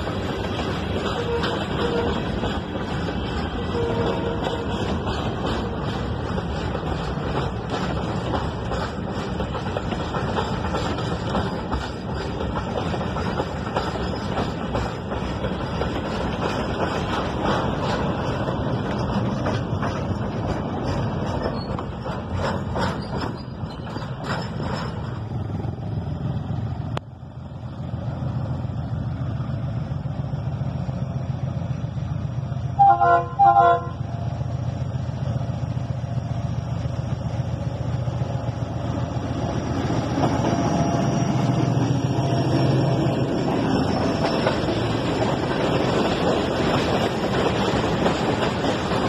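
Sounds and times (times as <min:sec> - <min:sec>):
freight wagons rolling past: 0:00.0 - 0:27.0, 0:36.9 - 0:49.0
wheels clicking over rail joints: 0:00.0 - 0:27.1, 0:33.7 - 0:49.0
diesel locomotive running: 0:00.0 - 0:49.0
train horn blasts: 0:01.1 - 0:02.3, 0:03.7 - 0:04.8, 0:32.8 - 0:34.1.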